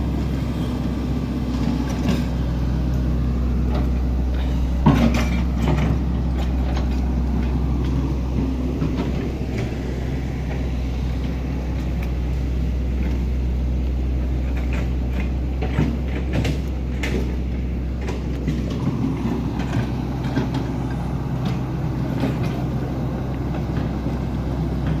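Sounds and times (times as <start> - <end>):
engine running at low pitch: 0.0 - 25.0
knocks and clanks: 3.7 - 11.2, 14.4 - 25.0.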